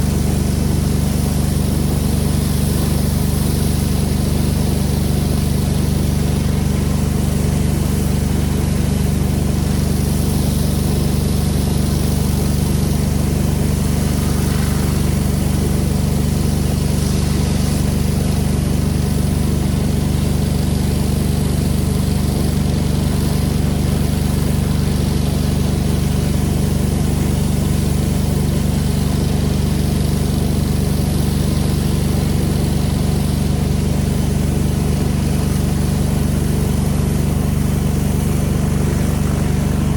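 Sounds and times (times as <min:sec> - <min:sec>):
pressure washer engine running: 0:00.0 - 0:39.9
pressure washer hiss: 0:00.0 - 0:39.9.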